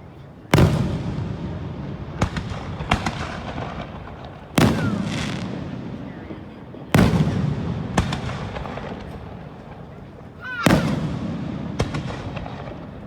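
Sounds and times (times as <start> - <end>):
fireworks booms with echo: 0.5 - 13.0
sharp firework pops: 2.2 - 6.0, 6.9 - 10.0, 10.6 - 13.0.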